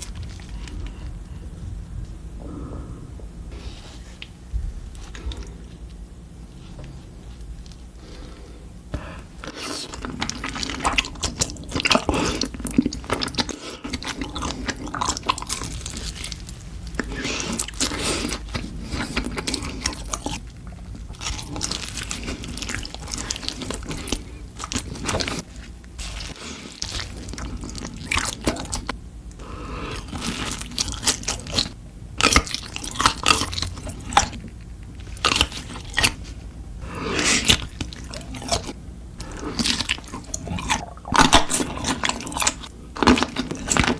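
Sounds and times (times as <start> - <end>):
crunchy chewing: 0.0 - 3.0, 3.6 - 6.0, 9.4 - 43.9.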